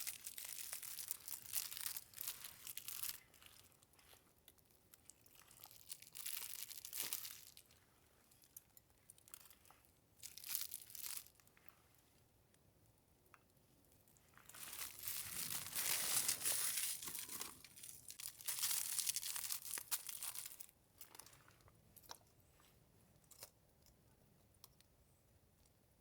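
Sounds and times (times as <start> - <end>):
packaging crinkled and torn: 0.0 - 4.2, 5.0 - 7.6, 10.2 - 11.4, 14.5 - 20.7.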